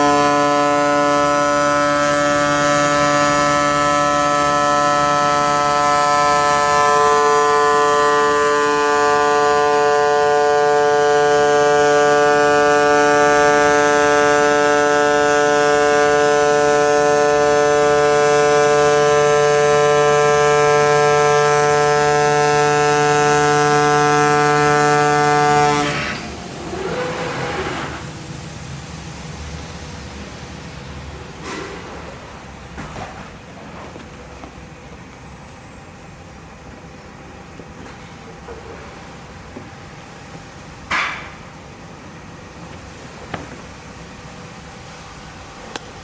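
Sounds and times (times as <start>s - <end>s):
cutting machine buzzing: 0.0s - 28.7s.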